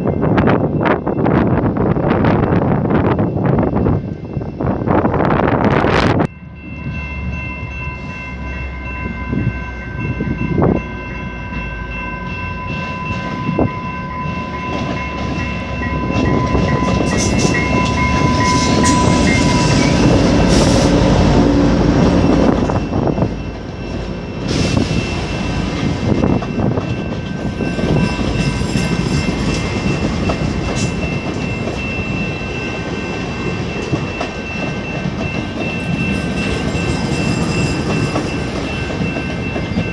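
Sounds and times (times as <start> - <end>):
high steady tone: 6.2 - 39.9
train wheels clicking on rails: 14.2 - 39.9.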